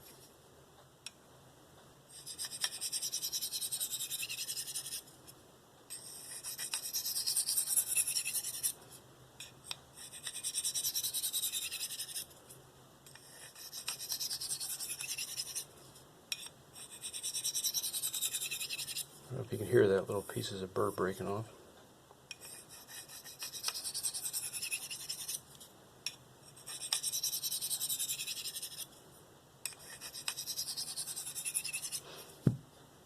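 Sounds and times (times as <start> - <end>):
knife scraping on ceramic stone: 2.1 - 5.1, 5.9 - 8.8, 9.4 - 12.3, 13.1 - 15.7, 16.3 - 19.1, 22.3 - 25.4, 26.5 - 28.9, 29.7 - 32.1.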